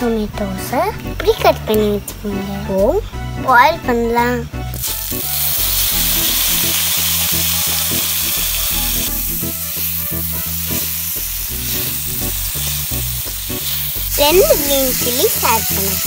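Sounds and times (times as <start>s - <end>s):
tomatoes sizzling in a pan: 4.7s - 16.0s.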